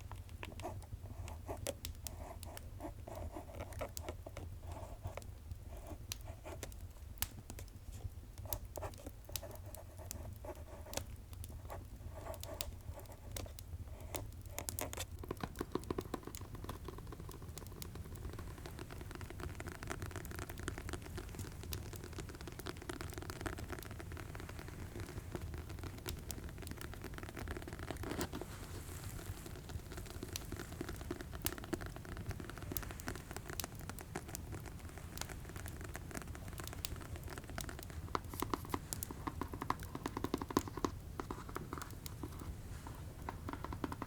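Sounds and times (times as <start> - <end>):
fireplace crackles: 5.2 - 44.0
fast tapping: 29.0 - 44.0.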